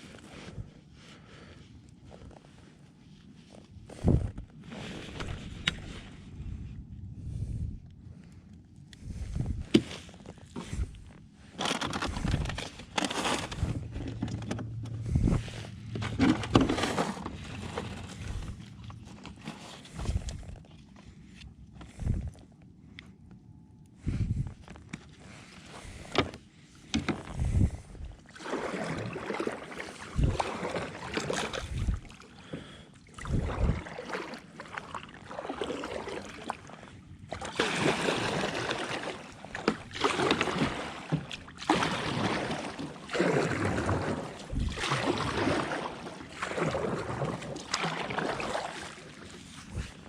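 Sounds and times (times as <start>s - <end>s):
paddle strokes splashing: 26.9s - 50.0s.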